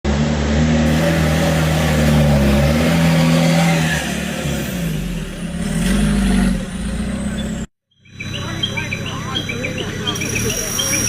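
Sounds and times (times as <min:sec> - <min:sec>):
engine revving under load: 0:00.1 - 0:11.0.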